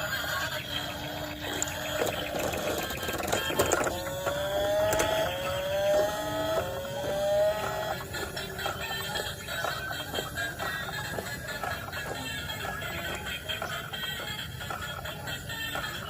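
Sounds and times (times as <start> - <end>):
electronic toy buzzing rattle: 0.0 - 11.7
short rising electronic tones: 1.0 - 8.2.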